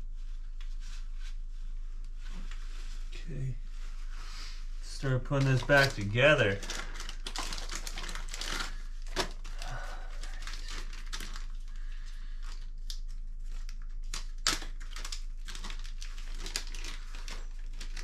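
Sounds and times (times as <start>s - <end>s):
packaging rustling and crinkling: 5.2s - 18.0s.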